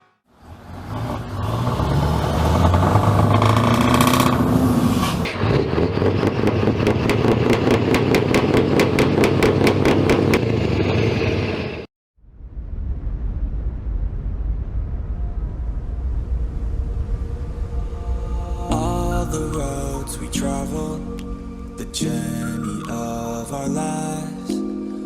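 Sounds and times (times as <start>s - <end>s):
truck engine running: 2.6s - 11.8s.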